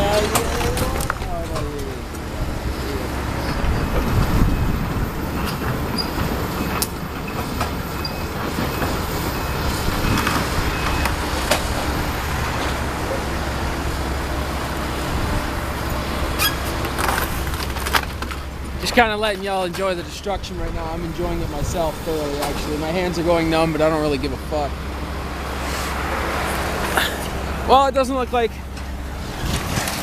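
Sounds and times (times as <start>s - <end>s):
excavator diesel engine running: 0.0s - 30.0s
debris knocking and crunching: 16.7s - 18.8s.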